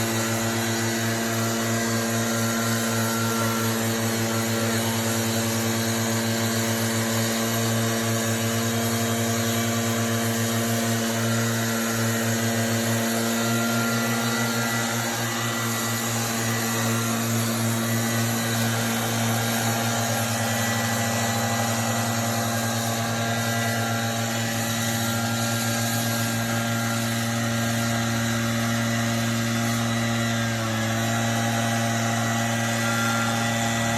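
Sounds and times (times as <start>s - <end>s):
machine motor humming: 11.2s - 33.9s.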